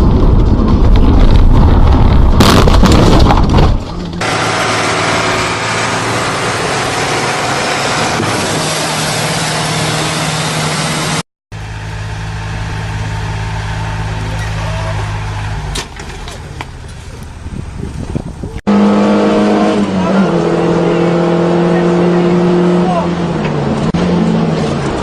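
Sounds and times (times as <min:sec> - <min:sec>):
loud low rough rumble: 0:00.0 - 0:18.6
heavy machine engine running: 0:03.8 - 0:18.6.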